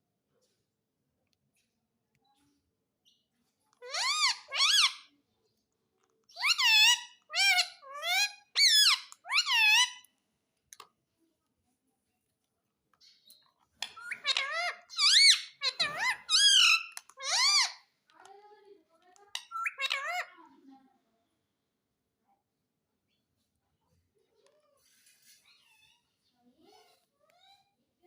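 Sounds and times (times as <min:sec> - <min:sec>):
parrot mimicking words: 0:19.3 - 0:20.4.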